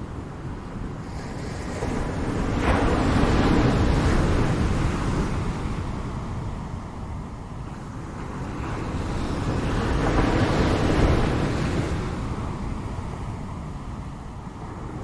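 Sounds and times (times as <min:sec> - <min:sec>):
ocean waves breaking: 0:01.0 - 0:06.8.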